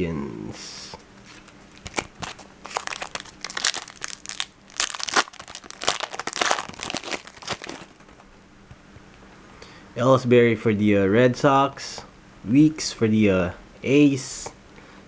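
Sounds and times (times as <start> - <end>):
foil wrapper crinkling and tearing: 1.2 - 8.2.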